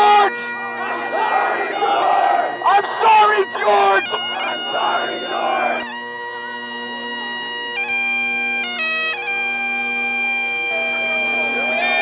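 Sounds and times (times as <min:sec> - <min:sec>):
bagpipes playing over drone: 0:00.0 - 0:12.0.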